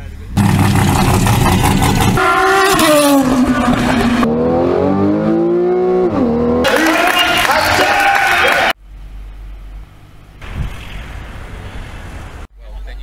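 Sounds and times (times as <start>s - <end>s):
car engines revving: 0.1s - 8.7s.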